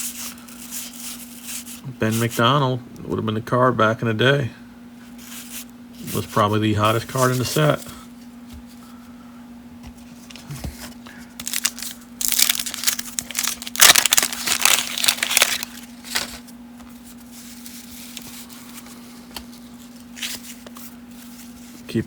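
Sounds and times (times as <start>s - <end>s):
wax paper wrapper crinkling and tearing: 11.4s - 18.8s.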